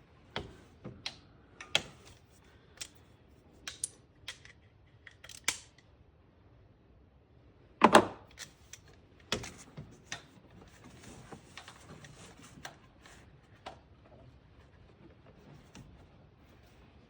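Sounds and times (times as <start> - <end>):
clicks and knocks of parts: 0.3 - 5.9.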